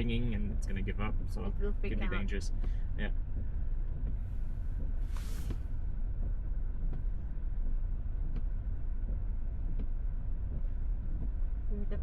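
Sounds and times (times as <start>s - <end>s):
road and tyre rumble: 0.0s - 12.0s
brief hiss: 5.0s - 5.8s.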